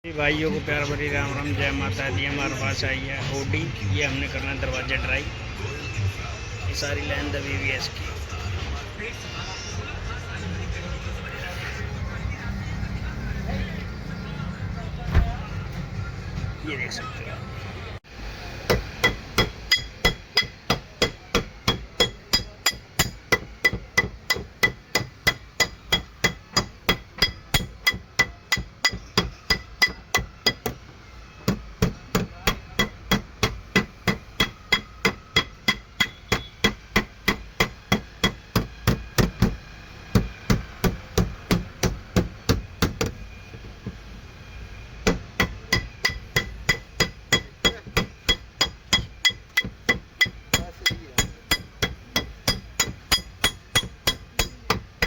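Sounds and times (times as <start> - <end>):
hammer tapping sheet metal: 18.7 - 30.8, 31.4 - 43.2, 45.0 - 55.0.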